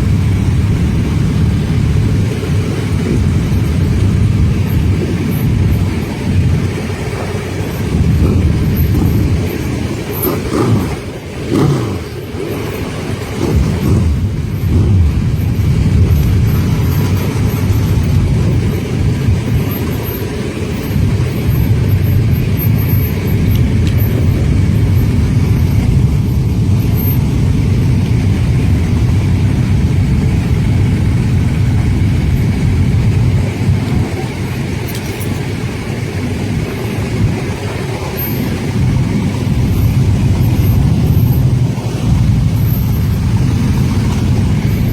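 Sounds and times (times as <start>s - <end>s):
motorcycle engines rumbling: 0.0s - 44.9s.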